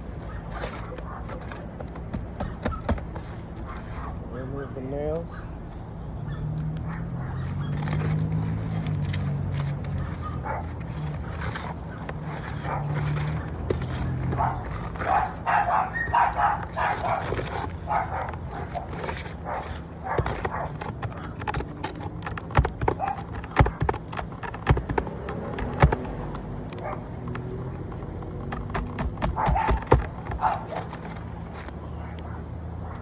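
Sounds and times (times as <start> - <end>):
tool knocking on roof shingle: 0.6 - 3.5, 7.8 - 31.0
dog barking: 6.2 - 8.1, 9.9 - 11.7, 12.3 - 21.4, 22.9 - 23.9, 26.8 - 27.1, 29.2 - 31.0.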